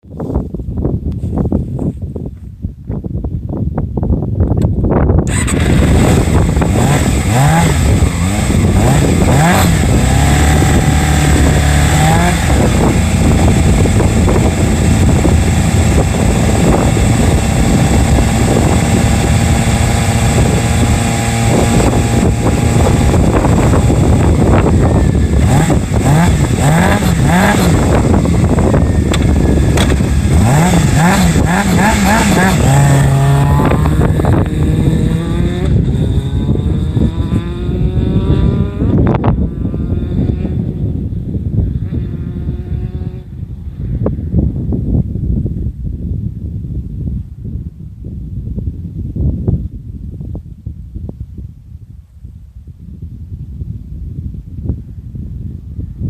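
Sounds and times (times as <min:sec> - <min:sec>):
motorcycle engine accelerating: 0:04.6 - 0:45.7.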